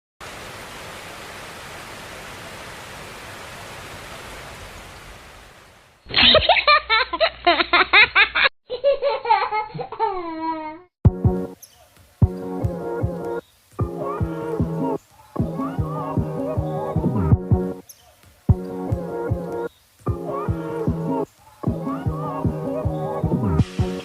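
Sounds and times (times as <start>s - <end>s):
giggling laughter: 6.1s - 10.7s
steady hiss: 11.5s - 17.1s, 17.7s - 24.0s.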